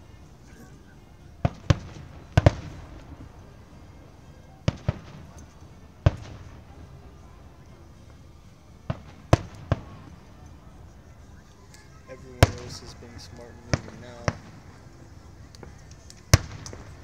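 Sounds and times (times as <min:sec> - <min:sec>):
firework shells bursting: 0:15.4 - 0:17.0.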